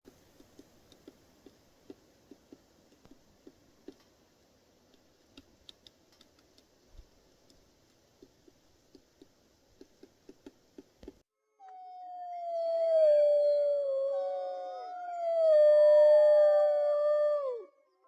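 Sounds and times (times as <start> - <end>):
woodpecker tapping on wood: 0.1 - 4.1, 4.9 - 11.2.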